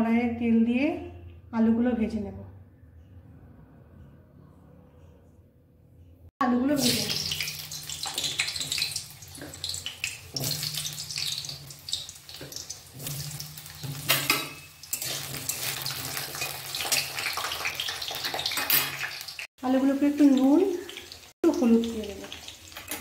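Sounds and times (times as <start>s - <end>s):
potatoes sizzling in hot oil: 6.7s - 23.0s.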